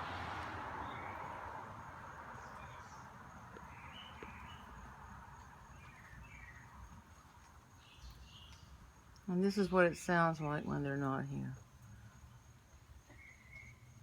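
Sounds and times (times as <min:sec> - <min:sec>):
passing vehicle: 0:00.0 - 0:06.4
songbirds chirping: 0:00.0 - 0:14.0.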